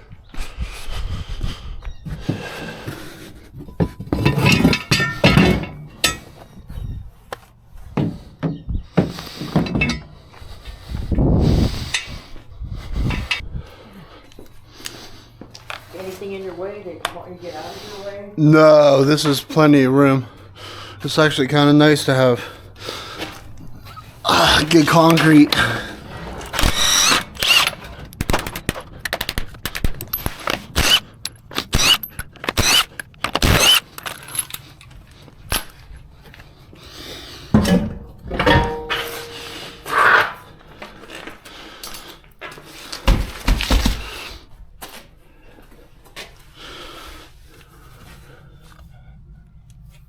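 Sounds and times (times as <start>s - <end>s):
metallic tool clicks and knocks: 27.2s - 34.9s.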